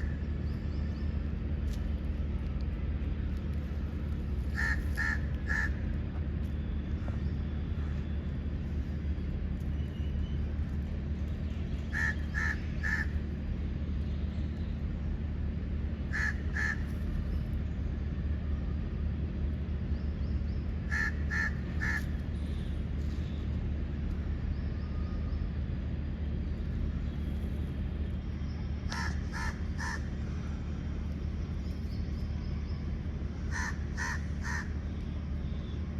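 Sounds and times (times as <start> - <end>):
low background rumble: 0.0 - 35.9.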